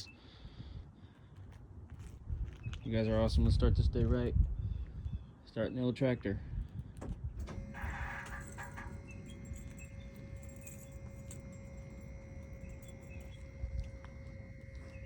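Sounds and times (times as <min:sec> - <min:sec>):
keys jangling: 0:07.4 - 0:15.0
steady electronic tones: 0:07.4 - 0:15.0.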